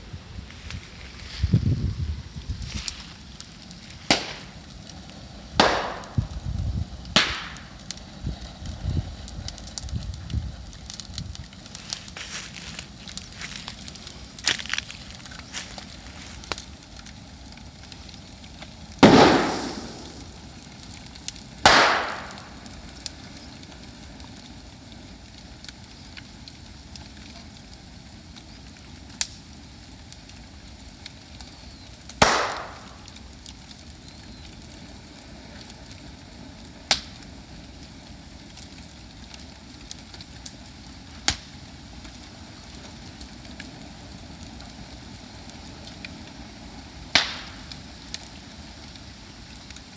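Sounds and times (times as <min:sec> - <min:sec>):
bonfire burning: 0:00.0 - 0:49.9
bamboo bursting with loud bangs: 0:04.0 - 0:04.6, 0:05.6 - 0:06.4, 0:07.2 - 0:07.7, 0:19.0 - 0:20.5, 0:21.6 - 0:22.7, 0:32.2 - 0:33.2
sharp pops: 0:04.0 - 0:04.6, 0:05.6 - 0:06.4, 0:07.2 - 0:07.7, 0:19.0 - 0:20.6, 0:21.6 - 0:22.7, 0:32.2 - 0:33.2.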